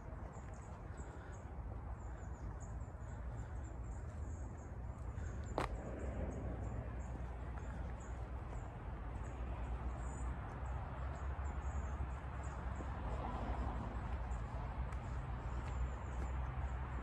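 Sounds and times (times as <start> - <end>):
low rumble and rustling: 3.4 - 11.9.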